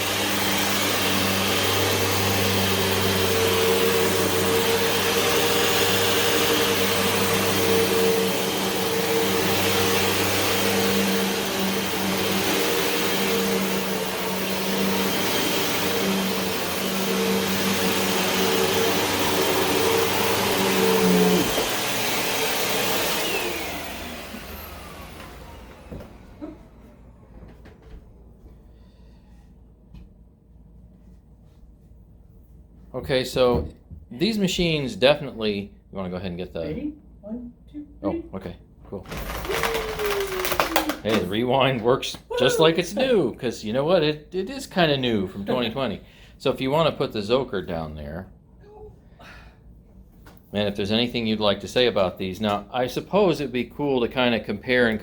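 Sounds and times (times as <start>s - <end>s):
motor winding down whine: 0.0s - 27.4s, 39.1s - 41.4s
vacuum cleaner on carpet: 0.0s - 27.9s, 39.1s - 41.4s, 42.2s - 45.9s.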